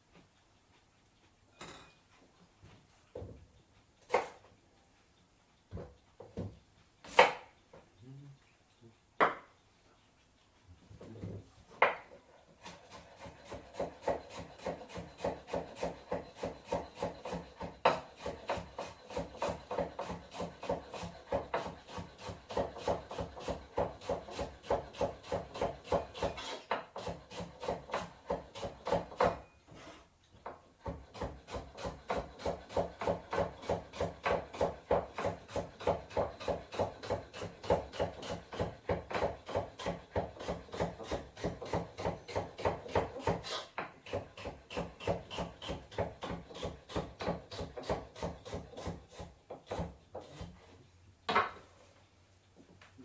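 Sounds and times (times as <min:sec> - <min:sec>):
knife chopping on wooden board: 0:04.1 - 0:04.4, 0:07.1 - 0:07.5, 0:11.8 - 0:29.5, 0:30.4 - 0:50.6
knock on cutting board: 0:09.2 - 0:09.4.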